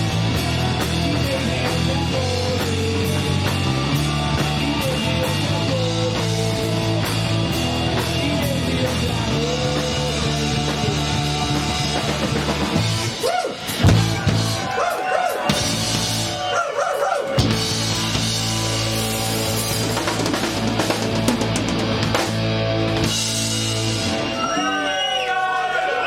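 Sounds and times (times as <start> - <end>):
rock band playing: 0.0 - 26.0.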